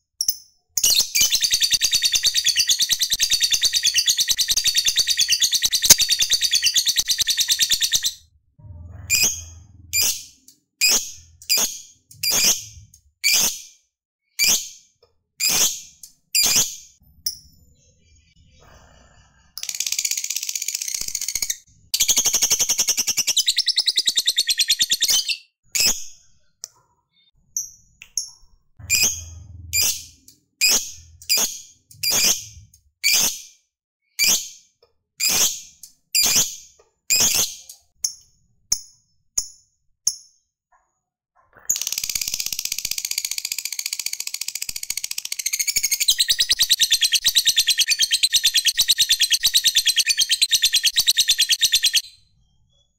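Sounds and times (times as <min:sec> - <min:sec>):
sharp bird chirps: 0:00.2 - 0:08.2, 0:19.6 - 0:33.3, 0:41.8 - 0:52.9
lovebird chattering trill: 0:00.8 - 0:08.2, 0:19.7 - 0:25.4, 0:41.7 - 0:52.0.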